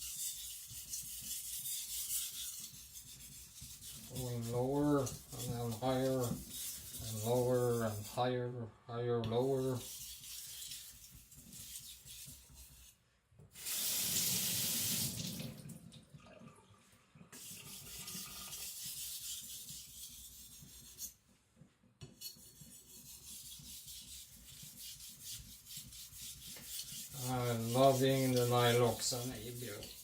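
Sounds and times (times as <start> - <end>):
knife on sharpening stone: 0.0 - 4.2, 22.1 - 30.0
faucet running: 13.6 - 16.1, 17.3 - 18.7.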